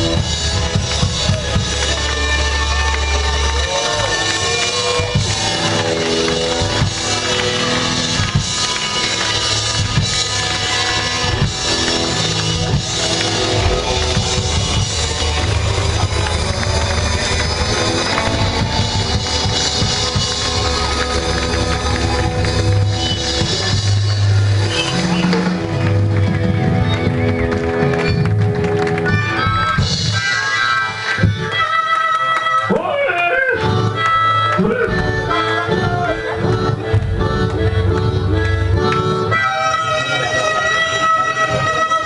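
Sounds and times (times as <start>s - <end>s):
drum kit beat: 0.0s - 30.4s
rockabilly band playing live: 0.0s - 42.0s.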